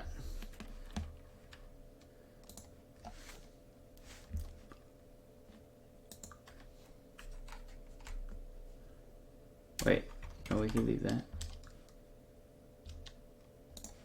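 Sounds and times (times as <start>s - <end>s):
steady low hum: 0.0s - 14.0s
keyboard and mouse clicks: 0.4s - 3.2s, 6.1s - 8.4s, 9.8s - 12.0s, 12.8s - 14.0s.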